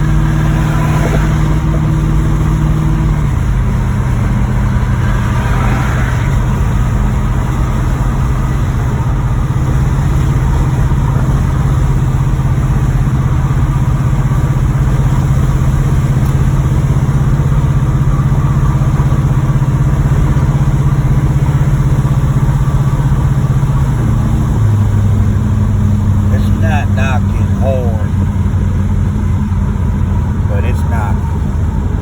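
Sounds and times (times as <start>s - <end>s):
car engine running: 0.0s - 32.0s
engine knocking: 6.4s - 30.5s.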